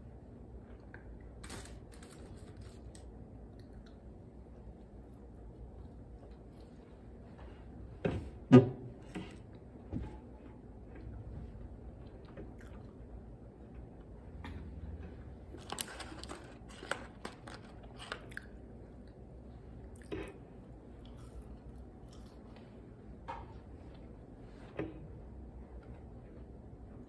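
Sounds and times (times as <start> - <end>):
paper wrapper crinkling: 1.4 - 3.1, 15.6 - 18.3.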